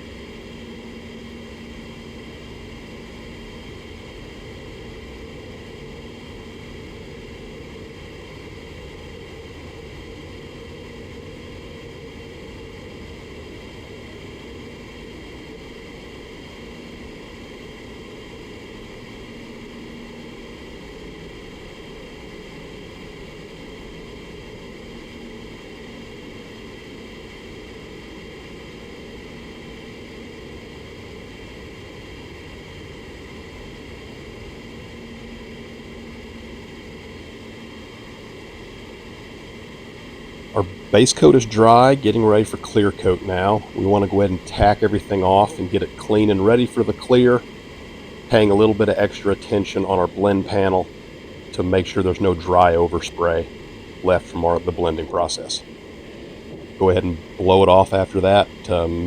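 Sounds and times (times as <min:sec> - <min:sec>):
low fan hum: 0:00.0 - 0:59.0
ventilation air rushing: 0:35.6 - 0:59.0.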